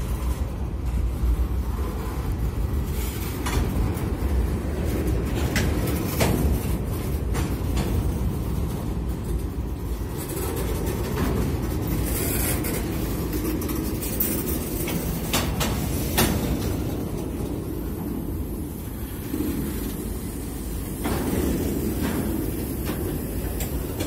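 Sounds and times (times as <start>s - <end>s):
train wheels rumbling on rail: 0.0s - 24.0s
clicks and clanks: 3.2s - 17.6s.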